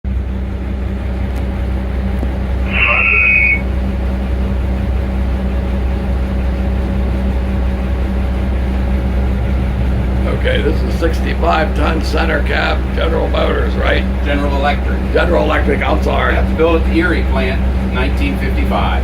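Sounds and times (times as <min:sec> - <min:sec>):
diesel locomotive engine idling: 0:00.1 - 0:19.0
short high-pitched tone: 0:02.6 - 0:03.6.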